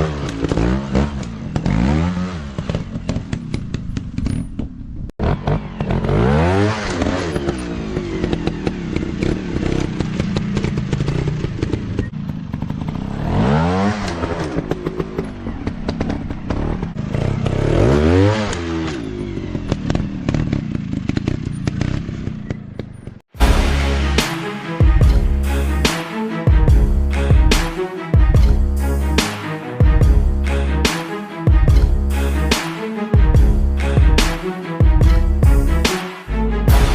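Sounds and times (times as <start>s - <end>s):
dirt bike engines revving: 0.0s - 3.7s
engine rattle and crackle: 0.1s - 17.8s, 18.4s - 23.3s.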